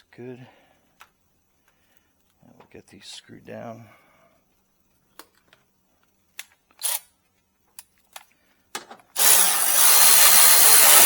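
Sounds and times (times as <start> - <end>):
cordless power driver running: 9.2 - 11.0.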